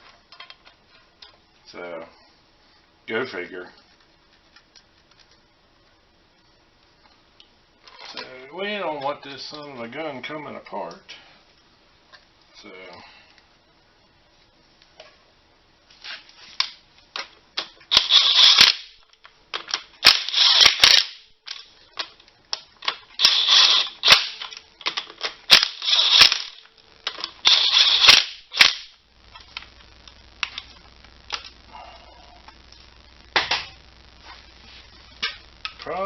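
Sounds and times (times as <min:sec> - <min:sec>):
clicks: 0:19.2 - 0:31.7, 0:32.4 - 0:35.9.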